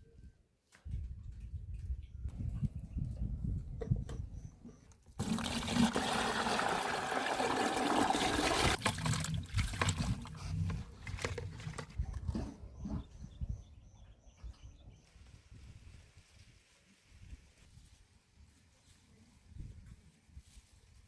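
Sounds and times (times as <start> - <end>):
water pouring and splashing: 5.2 - 10.4.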